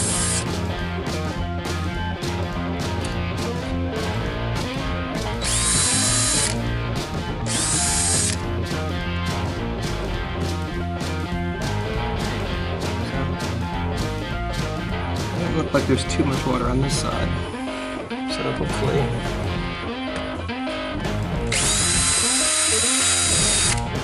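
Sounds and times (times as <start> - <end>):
guitar music with steady beat: 0.0 - 24.0
power drill bursts: 5.4 - 6.6, 7.5 - 8.4, 21.5 - 23.8.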